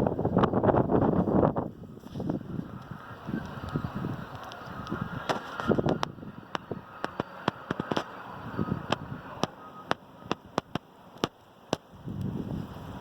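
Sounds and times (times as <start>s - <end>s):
wind buffeting microphone: 0.0s - 13.0s
sharp clicks and crackles: 2.1s - 12.3s.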